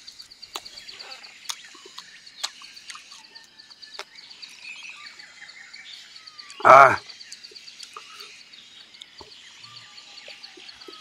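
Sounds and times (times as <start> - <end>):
insects chirring: 0.0 - 11.0
wet clicks and smacks: 0.5 - 0.8, 1.5 - 3.2.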